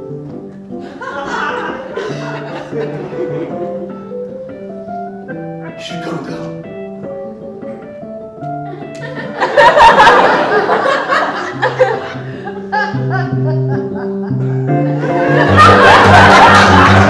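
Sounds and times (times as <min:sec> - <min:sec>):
instrumental music with held notes: 0:00.0 - 0:17.0
audience laughing: 0:00.8 - 0:04.0, 0:08.7 - 0:17.0.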